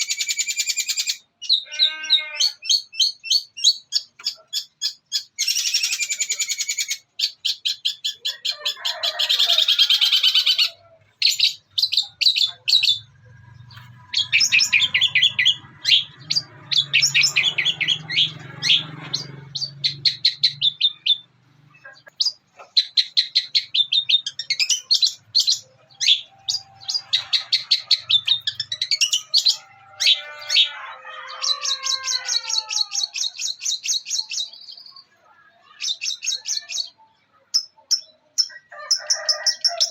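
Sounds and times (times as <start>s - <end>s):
shrike singing chattering notes: 11.2s - 30.6s.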